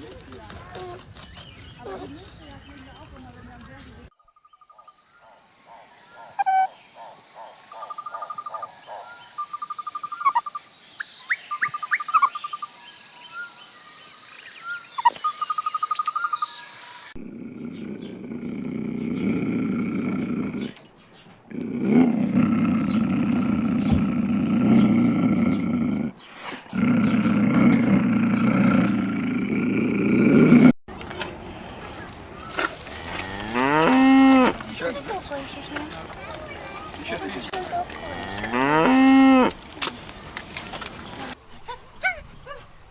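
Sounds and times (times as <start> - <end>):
chirps and trilling calls: 0.0 - 19.5
large animal roaring: 17.2 - 20.8, 21.5 - 30.7.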